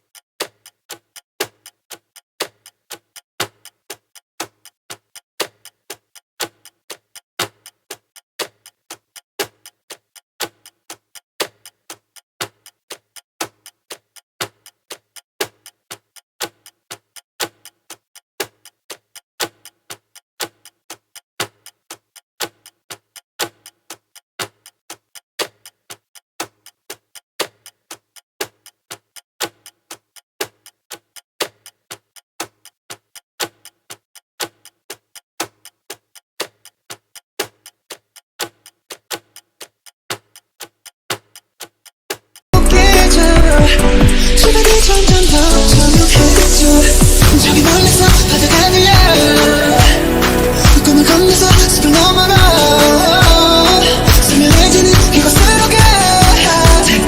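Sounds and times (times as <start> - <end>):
clock ticking: 0.0 - 57.0
loud music: 42.6 - 57.0.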